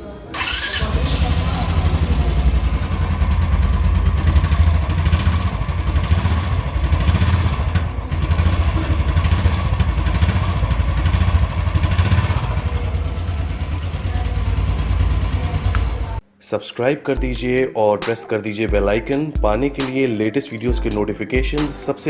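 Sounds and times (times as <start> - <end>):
motorcycle engine idling: 0.4 - 16.2.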